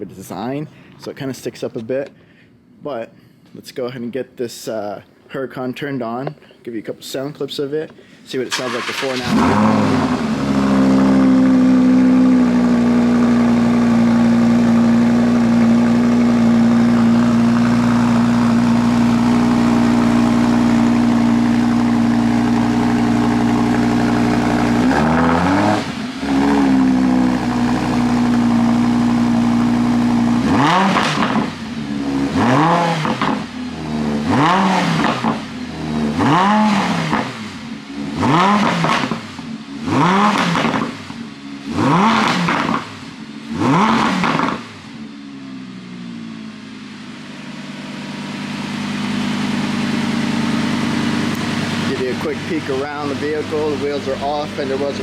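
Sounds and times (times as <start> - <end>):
engine revving in blips: 8.6 - 45.0
sports car engine idling: 8.7 - 43.6, 44.3 - 55.0.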